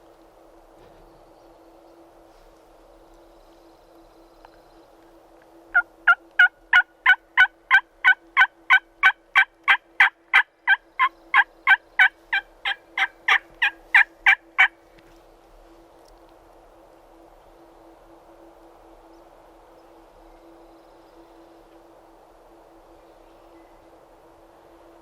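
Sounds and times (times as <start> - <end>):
turkey yelps: 5.8 - 14.7.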